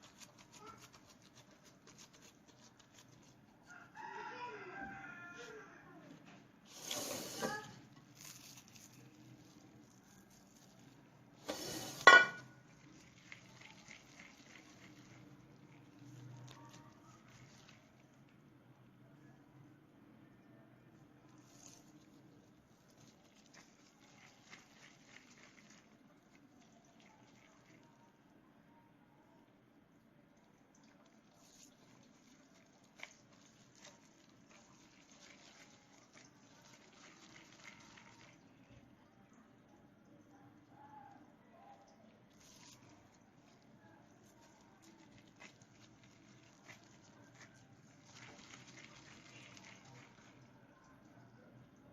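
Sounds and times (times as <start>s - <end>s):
kitchenware clinking: 11.5s - 12.6s.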